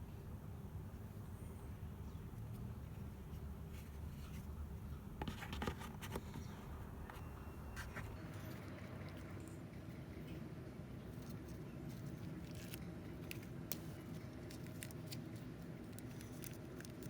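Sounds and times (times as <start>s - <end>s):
steady low hum: 0.0s - 17.0s
light clicks and scratches: 2.3s - 9.6s, 11.1s - 17.0s.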